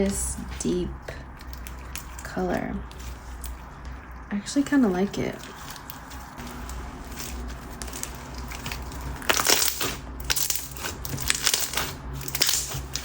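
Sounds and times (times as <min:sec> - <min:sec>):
slime crackling and popping: 0:05.4 - 0:13.0.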